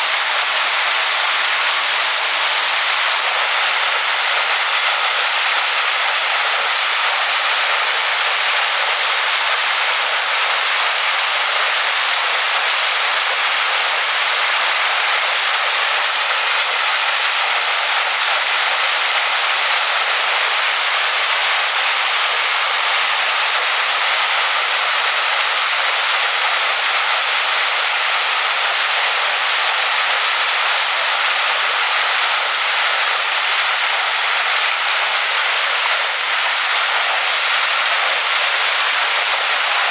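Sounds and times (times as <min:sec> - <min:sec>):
waterfall pouring onto rocks: 0:00.0 - 0:39.9.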